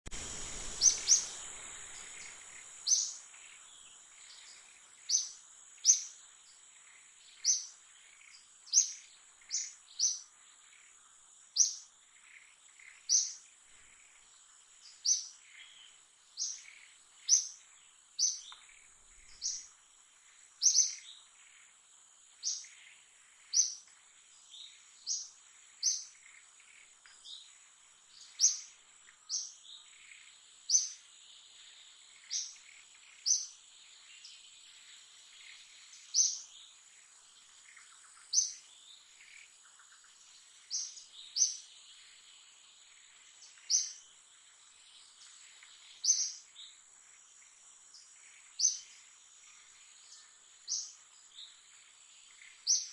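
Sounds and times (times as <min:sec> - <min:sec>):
bird chirping: 0:00.1 - 0:52.9.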